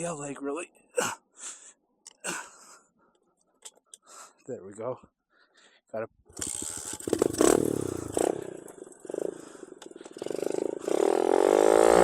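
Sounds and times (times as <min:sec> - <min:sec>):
dirt bike engine revving: 0:06.4 - 0:12.0.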